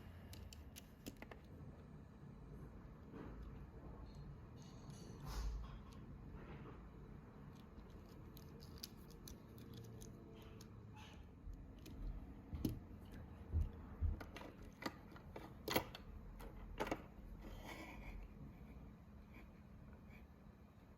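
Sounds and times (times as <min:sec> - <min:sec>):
plastic parts clicking and tapping: 0:00.2 - 0:01.6, 0:07.4 - 0:17.2.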